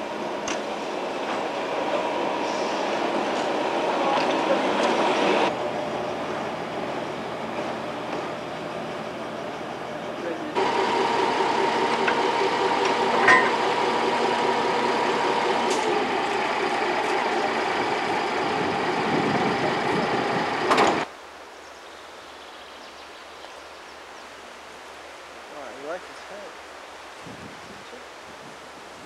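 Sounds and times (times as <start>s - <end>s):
transit vehicle humming: 0.0s - 21.1s.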